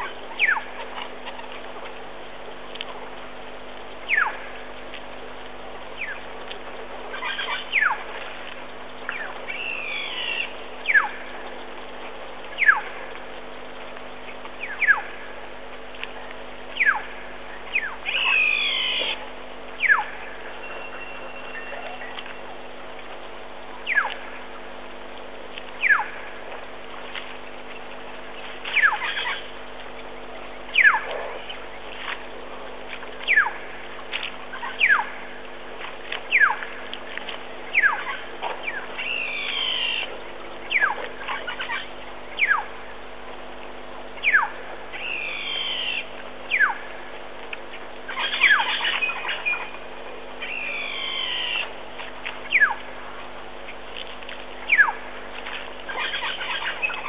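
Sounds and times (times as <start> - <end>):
bird whistling falling calls: 0.0 - 0.8, 4.0 - 4.5, 6.0 - 6.3, 7.1 - 8.1, 9.1 - 11.4, 12.6 - 13.0, 14.6 - 15.2, 16.8 - 22.4, 23.8 - 24.3, 25.8 - 26.3, 28.7 - 29.5, 30.7 - 31.7, 33.2 - 33.7, 34.5 - 35.2, 36.3 - 36.7, 37.7 - 42.7, 44.2 - 46.9, 48.1 - 49.8, 50.4 - 51.8, 52.4 - 52.8, 54.7 - 55.0.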